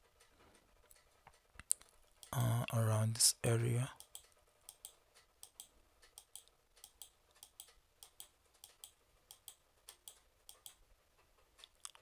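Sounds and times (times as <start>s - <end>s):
computer mouse clicking: 4.0s - 10.8s.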